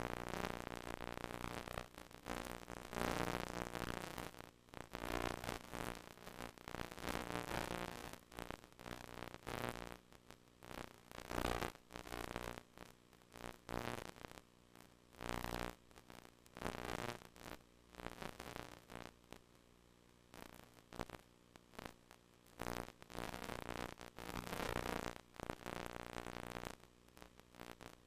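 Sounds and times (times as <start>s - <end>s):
static hiss: 0.0s - 19.6s, 20.3s - 28.0s.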